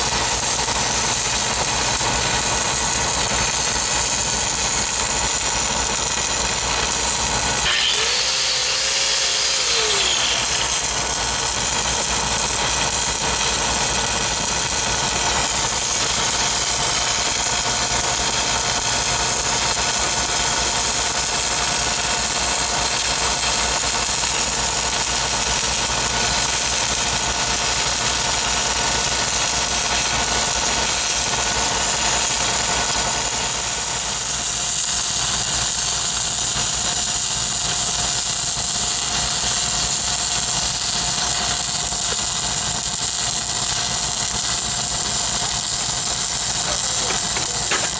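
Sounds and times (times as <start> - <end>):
power tool winding down: 6.9 - 16.6, 46.4 - 47.9.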